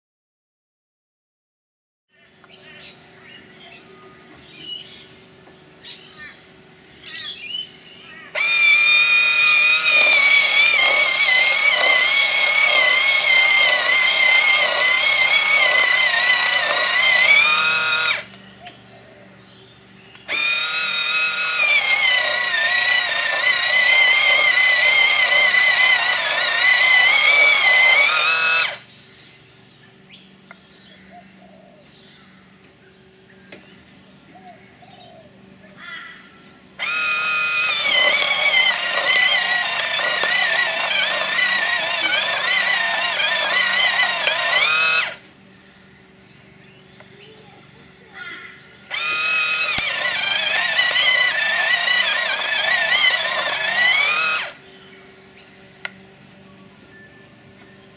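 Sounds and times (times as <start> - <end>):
electric pencil sharpener whine: 8.3 - 18.4, 20.2 - 28.9, 36.8 - 45.2, 48.9 - 54.6
small clicks: 26.2 - 28.8, 49.0 - 51.2, 52.6 - 54.6.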